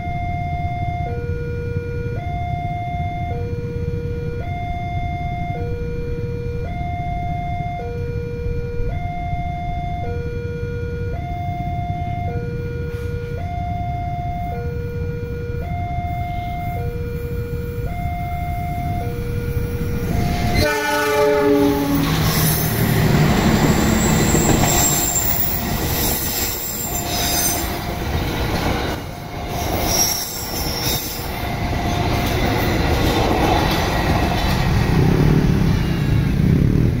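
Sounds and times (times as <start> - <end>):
locomotive horn: 7.8 - 32.3
train wheels rumbling on rail: 16.6 - 37.0
wheel squeals: 22.0 - 33.0.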